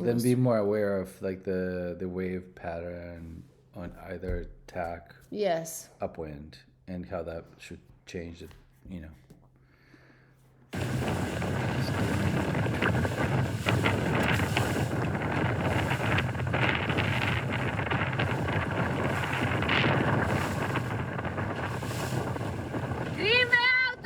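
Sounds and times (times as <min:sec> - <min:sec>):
waves splashing: 0:10.8 - 0:24.0
wind buffeting microphone: 0:10.8 - 0:24.0.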